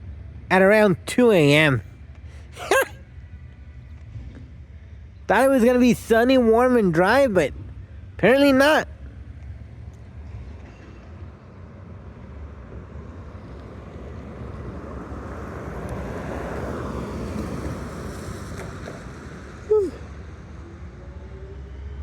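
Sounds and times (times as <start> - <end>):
low traffic hum: 0.0 - 22.0
tyres hissing on wet road: 13.4 - 19.7.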